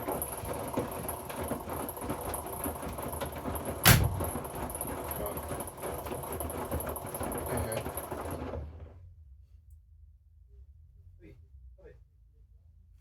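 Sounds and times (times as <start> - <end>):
washing machine rumbling: 0.0 - 9.0.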